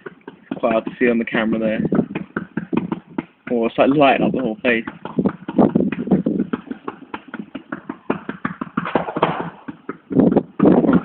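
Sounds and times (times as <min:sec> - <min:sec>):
fireworks bangs and crackles: 0:08.8 - 0:11.0.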